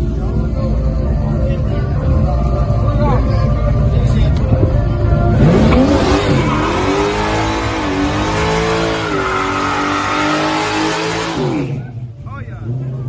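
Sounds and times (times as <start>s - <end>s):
race car engine at high revs: 5.2s - 13.0s.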